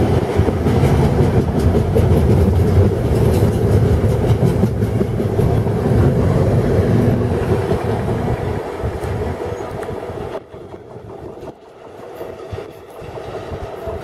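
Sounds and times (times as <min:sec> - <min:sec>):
wheels clattering over rail joints: 0:00.0 - 0:05.9.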